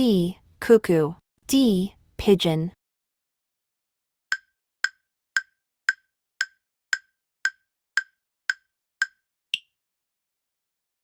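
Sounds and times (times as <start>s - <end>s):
clock-like ticking: 4.3s - 9.7s.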